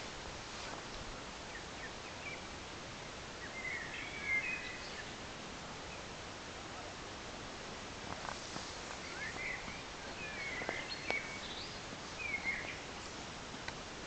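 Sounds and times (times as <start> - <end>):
steady background hiss: 0.0 - 14.0
bird chirps and twittering: 8.9 - 13.0.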